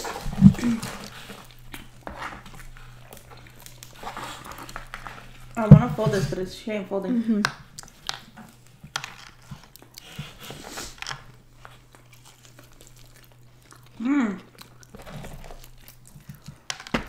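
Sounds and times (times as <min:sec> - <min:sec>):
person humming mm: 0:00.0 - 0:01.1
biting and chewing pizza: 0:00.0 - 0:06.4, 0:07.5 - 0:17.0.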